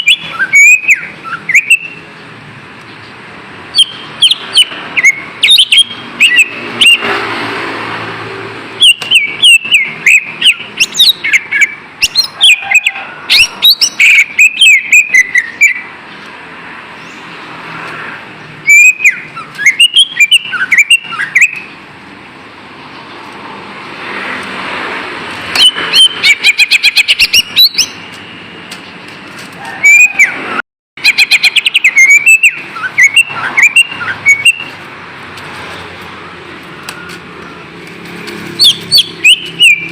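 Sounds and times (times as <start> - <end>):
bird singing whistles and chirps: 0.0 - 2.0, 3.7 - 7.0, 8.8 - 15.8, 18.7 - 21.7, 25.6 - 28.0, 31.0 - 34.7, 38.6 - 39.9.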